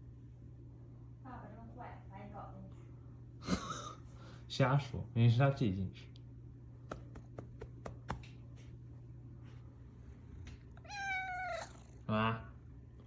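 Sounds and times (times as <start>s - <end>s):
cat meowing: 10.8s - 12.0s.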